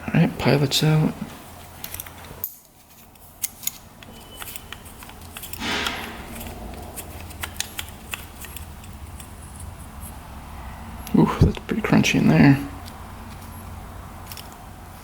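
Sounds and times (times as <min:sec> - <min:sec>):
metallic clicks of small parts: 0:01.8 - 0:09.3, 0:14.2 - 0:14.6.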